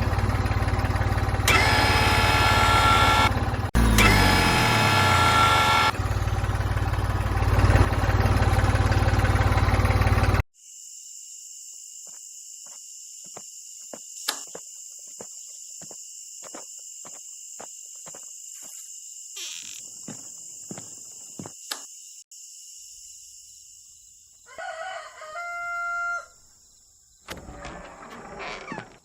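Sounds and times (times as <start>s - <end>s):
small motor buzzing: 0.0s - 6.2s
insect-like chirring: 10.6s - 24.6s.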